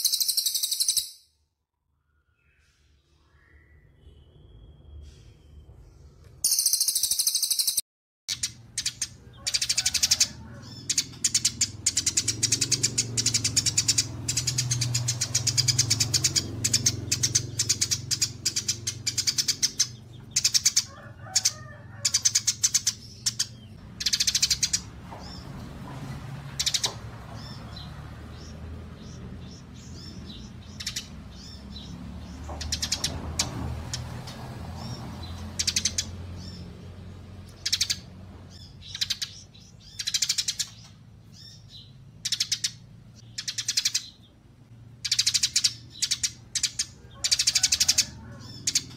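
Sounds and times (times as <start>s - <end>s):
songbird chattering trills: 6.5s - 25.4s, 26.6s - 32.0s, 35.2s - 36.6s, 37.4s - 44.4s, 45.0s - 48.9s.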